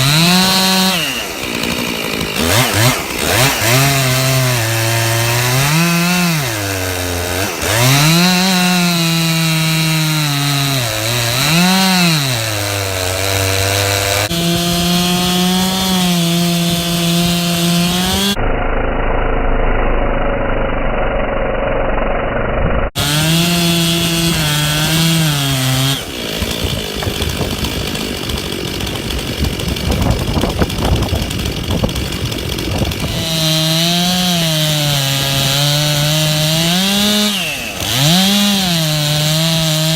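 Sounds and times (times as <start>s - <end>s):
chainsaw cutting wood: 0.0s - 39.9s
rough noisy rumble: 18.2s - 33.3s.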